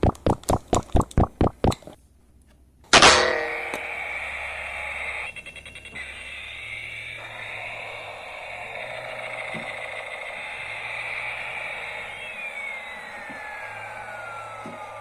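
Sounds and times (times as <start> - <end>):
toy motor whirring: 3.6 - 15.0.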